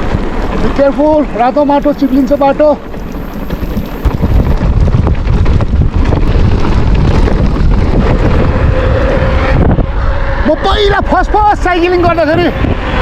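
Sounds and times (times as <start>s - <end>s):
bicycle rattling and knocking: 0.0s - 9.9s
wind buffeting microphone: 0.0s - 13.0s.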